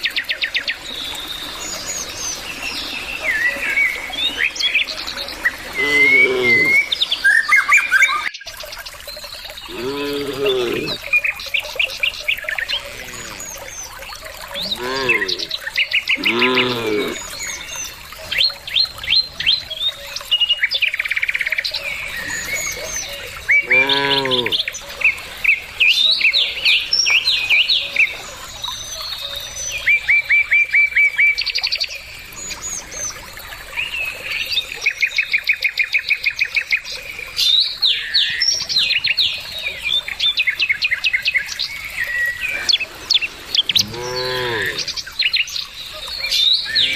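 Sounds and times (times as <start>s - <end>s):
birds chirping and trilling: 0.0s - 46.9s
cattle mooing: 5.8s - 6.8s, 9.7s - 11.0s, 12.8s - 13.5s, 14.6s - 15.5s, 16.2s - 17.2s, 23.6s - 24.6s, 42.6s - 44.9s.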